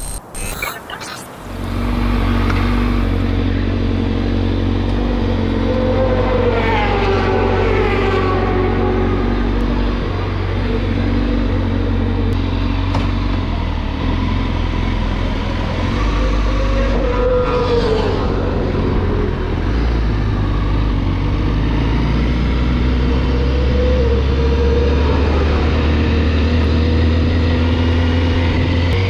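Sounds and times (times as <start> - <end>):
motorcycle engine running: 1.5 - 5.6.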